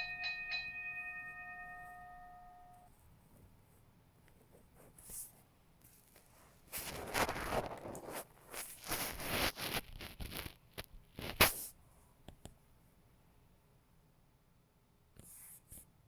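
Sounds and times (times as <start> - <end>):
plastic toy scraping and rustling: 5.9 - 10.6.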